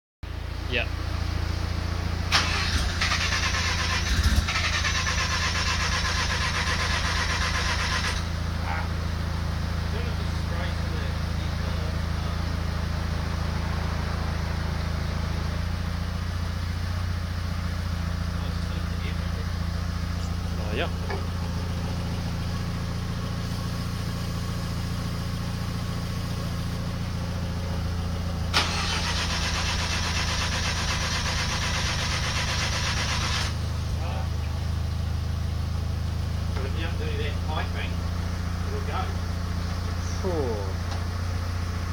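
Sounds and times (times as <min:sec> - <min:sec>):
car engine cranking on starter: 0:02.3 - 0:08.3, 0:28.5 - 0:33.6.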